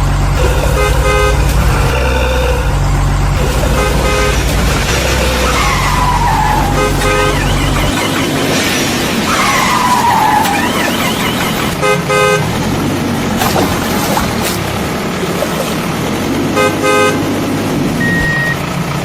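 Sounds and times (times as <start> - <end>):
cartoon tractor engine rumble: 0.0 - 19.0
rapid horn toots: 0.3 - 12.8, 16.4 - 17.5
falling whines: 0.4 - 11.8.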